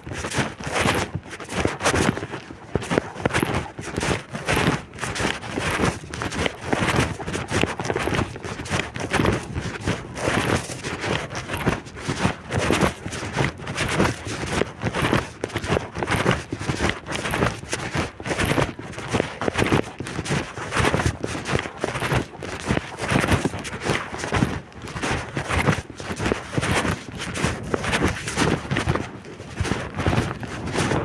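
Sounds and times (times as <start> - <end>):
footsteps walking: 21.2 - 31.0.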